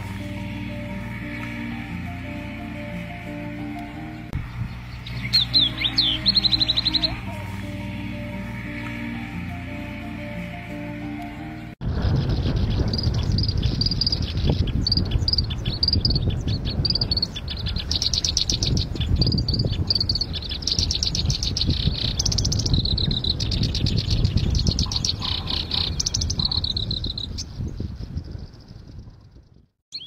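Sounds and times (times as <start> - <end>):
songbird chirping and trilling: 0.0 - 30.0
steady low rumble: 4.2 - 10.0, 11.8 - 24.8.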